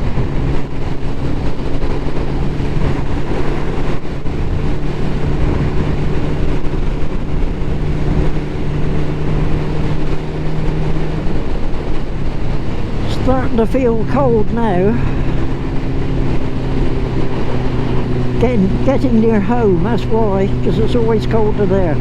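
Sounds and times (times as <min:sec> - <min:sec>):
motorcycle engine cruising: 0:00.0 - 0:22.0
wind noise rushing: 0:00.0 - 0:22.0.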